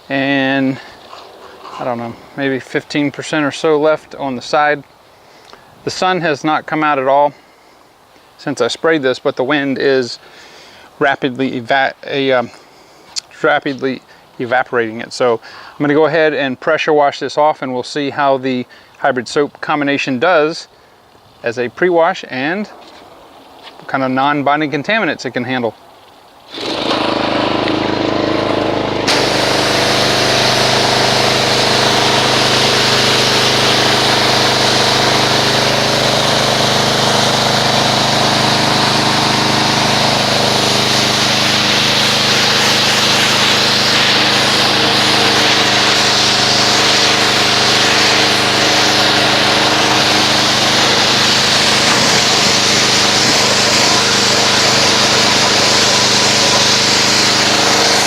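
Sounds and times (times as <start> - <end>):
high-pressure spray hiss: 26.5 - 58.0
pressure washer motor humming: 26.5 - 58.0.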